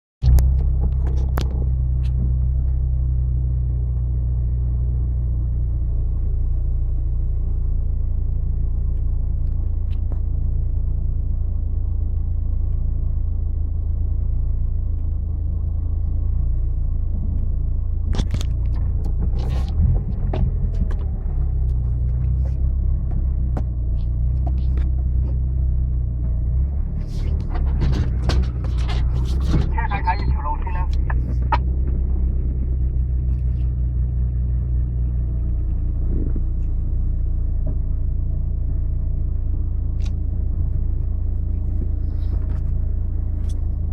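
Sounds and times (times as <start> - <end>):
vehicle engine rumbling: 0.2 - 43.9
knocks and rattles: 18.1 - 25.6, 26.2 - 30.0.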